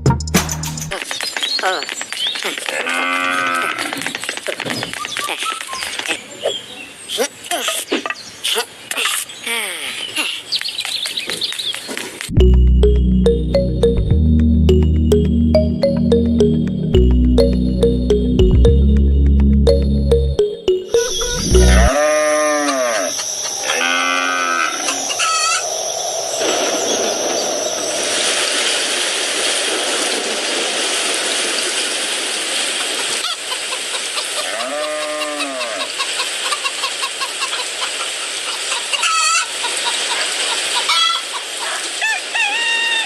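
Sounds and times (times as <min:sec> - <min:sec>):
short high chirps: 0:19.7 - 0:21.9
farm animal calls: 0:34.2 - 0:37.7.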